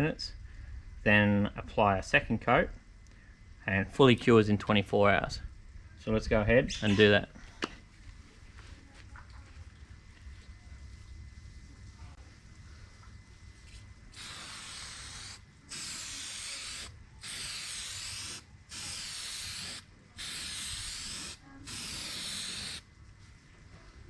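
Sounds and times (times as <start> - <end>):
aerosol can spraying: 14.2 - 22.8.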